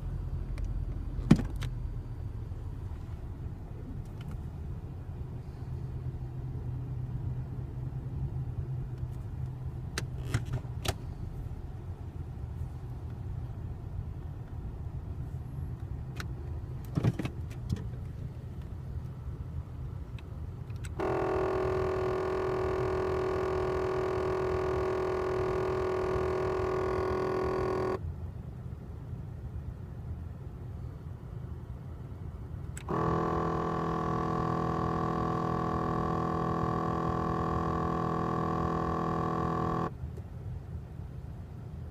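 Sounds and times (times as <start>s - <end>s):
low engine rumble: 0.0s - 41.9s
actuator motor buzzing: 21.0s - 28.0s, 32.8s - 39.9s.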